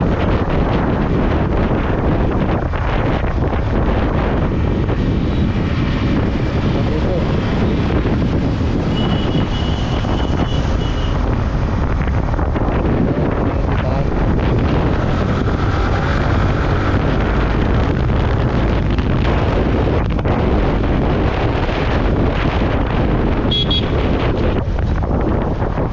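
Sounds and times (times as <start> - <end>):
road noise: 0.0 - 25.9
wind rushing over microphone: 0.0 - 25.9
motorcycle engine: 0.1 - 25.9.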